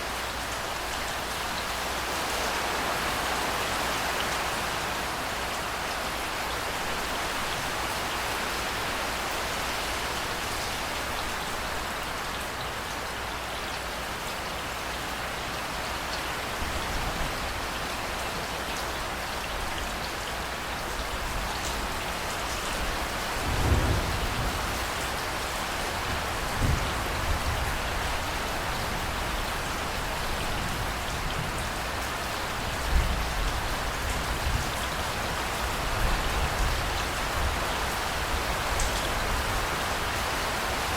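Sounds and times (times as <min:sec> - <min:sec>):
heavy rain hissing: 0:16.4 - 0:40.9
thunder rumbling: 0:23.4 - 0:25.0.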